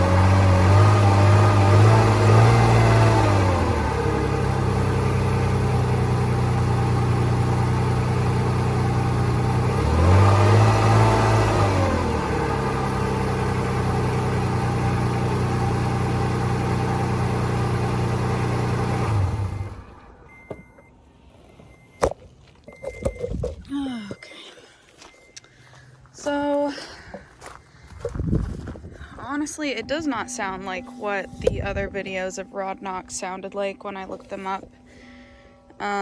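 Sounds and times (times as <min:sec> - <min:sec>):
car engine idling and revving: 0:00.0 - 0:26.7.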